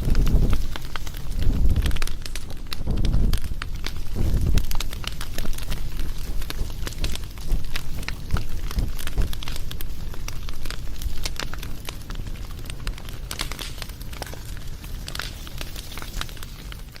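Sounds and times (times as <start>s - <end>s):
bonfire crackling: 0.0s - 17.0s.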